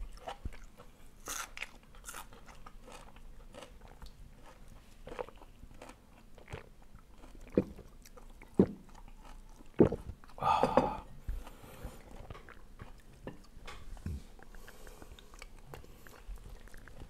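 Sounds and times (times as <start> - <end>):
person chewing and crunching food: 0.0 - 17.0.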